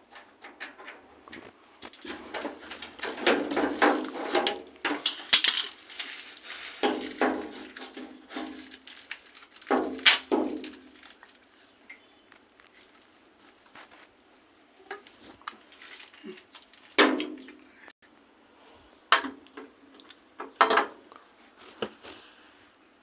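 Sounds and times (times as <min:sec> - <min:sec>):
hard objects knocking and clattering: 0:00.0 - 0:11.3.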